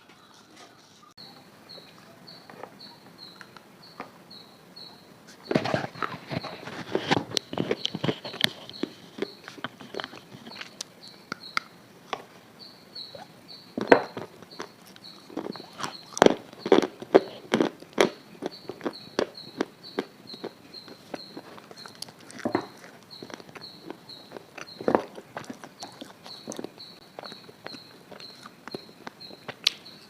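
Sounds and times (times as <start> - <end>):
faint high chirp: 0.2 - 5.7, 12.6 - 16.8
crunching and crackling: 5.3 - 30.0.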